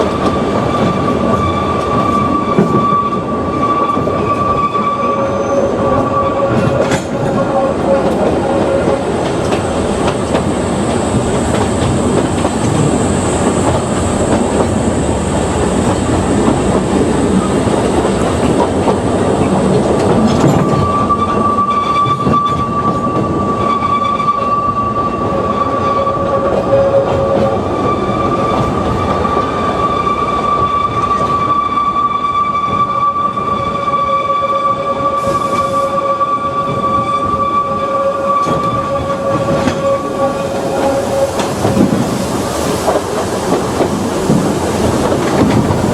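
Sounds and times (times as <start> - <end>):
train rumbling on track: 0.0 - 45.9
high wheel squeal: 0.6 - 9.1, 20.4 - 42.2.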